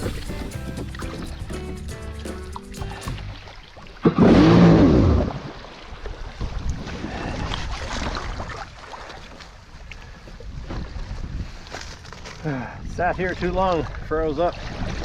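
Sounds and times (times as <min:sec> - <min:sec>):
water noise: 0:00.0 - 0:11.8, 0:12.8 - 0:15.0
wind: 0:02.4 - 0:15.0
jet ski engine revving: 0:04.2 - 0:05.3.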